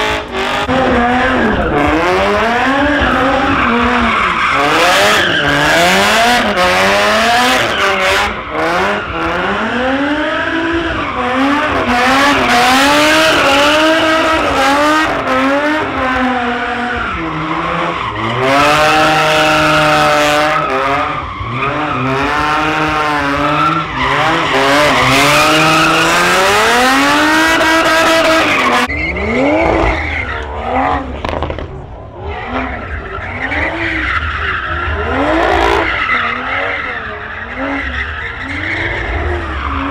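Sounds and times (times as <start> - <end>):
car engine revving: 0.0 - 39.9
tyres screeching: 0.6 - 6.6.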